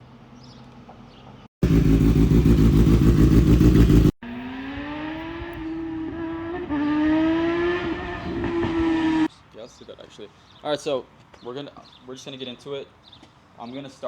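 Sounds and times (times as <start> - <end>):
sport bike exhaust revving: 1.6 - 9.3.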